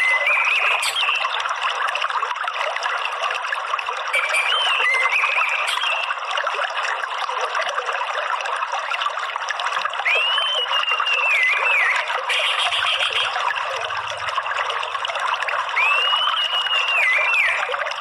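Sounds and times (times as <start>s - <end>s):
water trickling: 0.0s - 18.0s
bird whistling: 10.1s - 13.4s, 15.8s - 17.7s.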